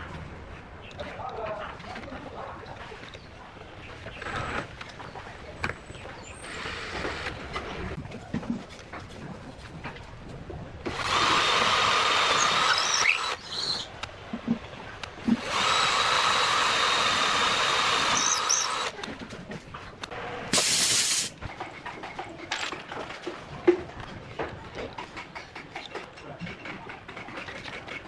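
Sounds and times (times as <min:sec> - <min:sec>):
power tool whining: 0:10.9 - 0:13.6, 0:15.4 - 0:18.9
short hissing burst: 0:20.5 - 0:21.4.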